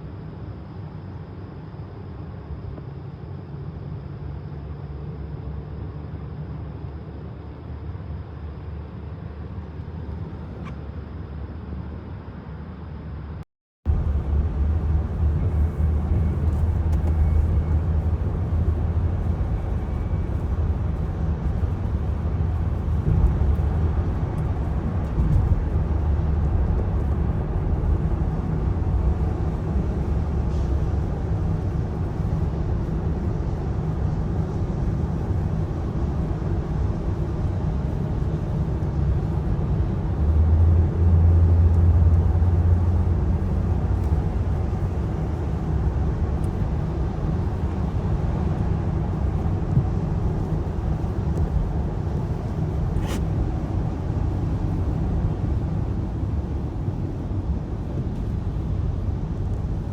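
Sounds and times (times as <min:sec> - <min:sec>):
motor vehicle rumbling: 0:12.7 - 0:59.9.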